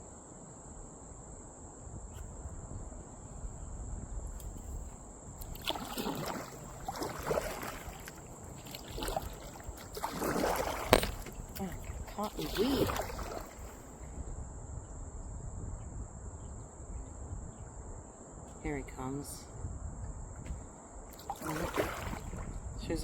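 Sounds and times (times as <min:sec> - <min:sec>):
insect trill: 0:00.0 - 0:23.0
low rumble of wind: 0:00.0 - 0:23.0
paddle strokes in water: 0:04.4 - 0:14.2, 0:20.4 - 0:22.9.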